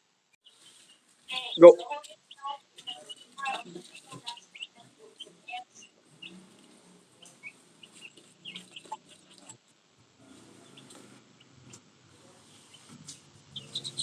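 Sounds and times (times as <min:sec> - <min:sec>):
bird chirps: 0:00.4 - 0:06.4, 0:07.2 - 0:09.6, 0:13.5 - 0:14.0.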